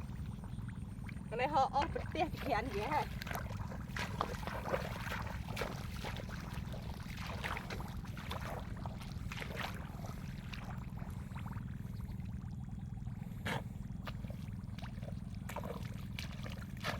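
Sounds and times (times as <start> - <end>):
steady low rumble: 0.0 - 16.9
hands splashing in muddy water: 1.8 - 11.4, 13.5 - 16.9.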